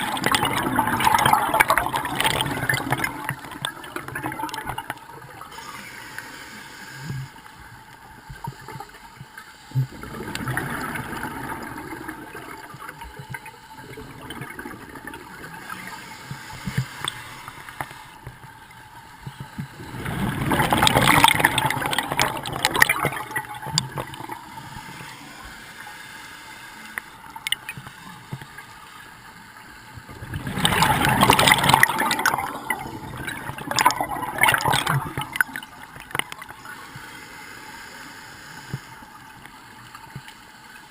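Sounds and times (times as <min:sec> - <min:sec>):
gurgling bursts of bubbles: 0:00.0 - 0:05.7, 0:09.8 - 0:16.4, 0:19.6 - 0:25.4, 0:30.1 - 0:36.6
steady watery background: 0:00.0 - 0:40.9.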